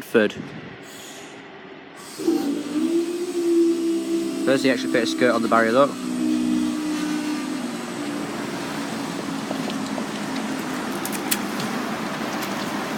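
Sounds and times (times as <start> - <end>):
even hiss: 0.8 - 9.5
electric train humming: 0.8 - 12.9.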